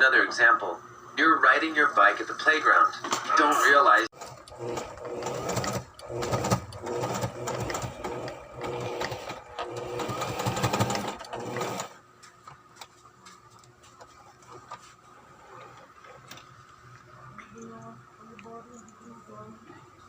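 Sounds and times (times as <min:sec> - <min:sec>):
sewing machine stitching: 0:04.2 - 0:12.0.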